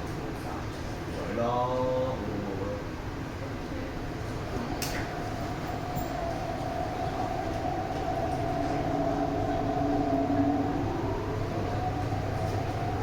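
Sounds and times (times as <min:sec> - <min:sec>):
train rumble: 0:03.1 - 0:13.0.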